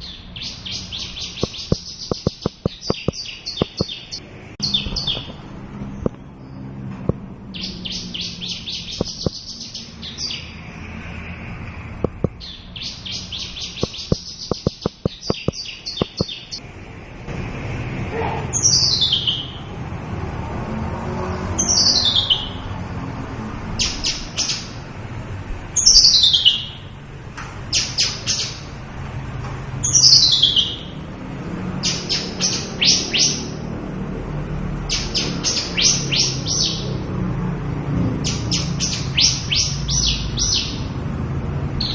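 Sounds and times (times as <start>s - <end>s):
lark singing buzzy trills: 0.0s - 5.3s, 7.6s - 10.4s, 12.0s - 16.6s
sharp clicks: 1.4s - 4.0s, 8.9s - 9.5s, 12.0s - 12.4s, 13.8s - 16.4s.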